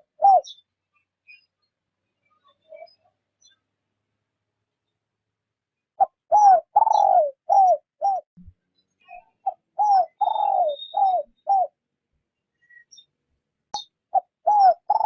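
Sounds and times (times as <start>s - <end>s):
dove cooing: 0.0s - 0.6s, 6.0s - 8.2s, 9.4s - 11.8s, 14.1s - 15.0s.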